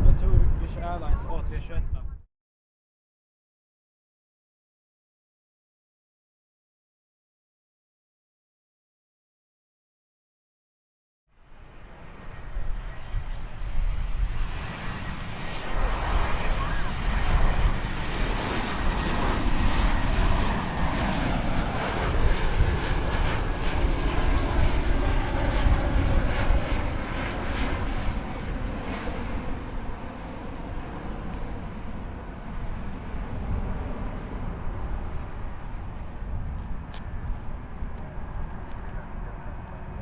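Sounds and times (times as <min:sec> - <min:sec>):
jet airliner engines: 0:00.0 - 0:02.1, 0:11.4 - 0:40.0.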